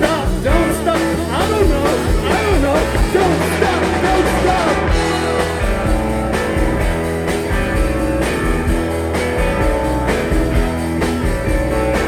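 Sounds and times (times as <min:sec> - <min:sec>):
person singing: 0:00.0 - 0:05.9
rock band playing live: 0:00.0 - 0:12.0.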